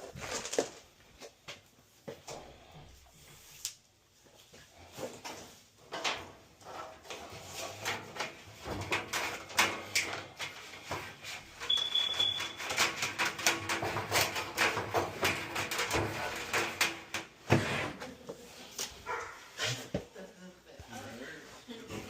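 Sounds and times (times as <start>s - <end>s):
tools and parts clattering: 0.0s - 0.9s, 5.0s - 19.3s
short electronic beep: 11.7s - 12.6s.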